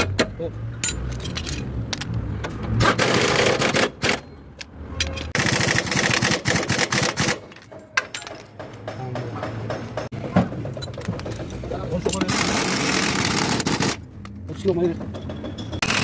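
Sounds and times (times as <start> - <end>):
pneumatic impact wrench hammering: 2.6 - 4.2, 5.3 - 7.6, 12.2 - 14.0, 15.3 - 16.0.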